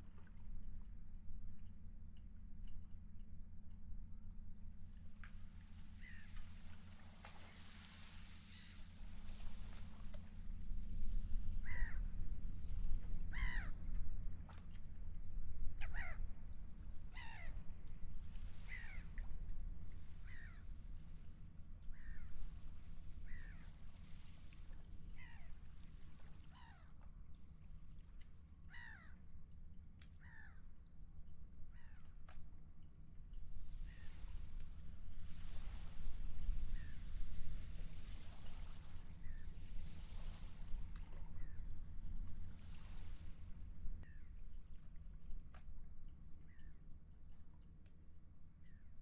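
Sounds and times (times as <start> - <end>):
low steady rumble: 0.0 - 49.0.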